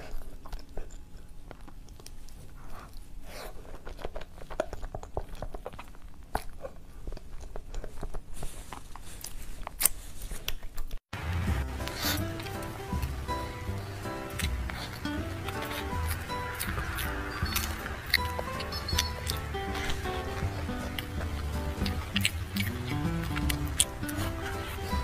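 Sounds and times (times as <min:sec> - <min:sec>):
wet chewing and smacks: 0:00.0 - 0:25.0
music: 0:11.2 - 0:25.0
lips sucking on fingers: 0:11.7 - 0:25.0.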